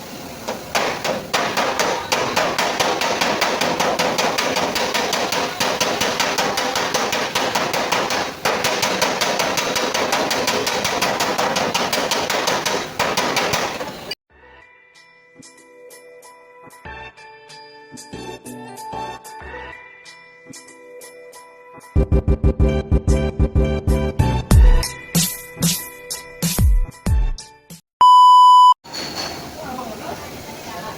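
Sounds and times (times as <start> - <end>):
hammer striking sheet metal: 0.4 - 14.1.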